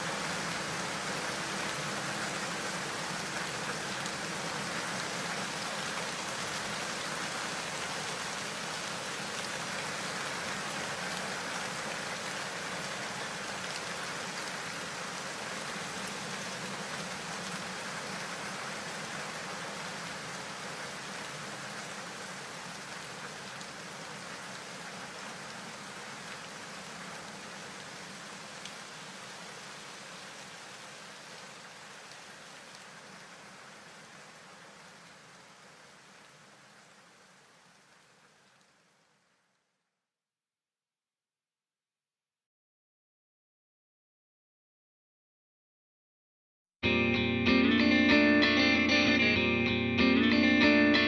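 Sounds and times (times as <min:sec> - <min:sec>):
heavy rain falling: 0:00.0 - 0:39.0.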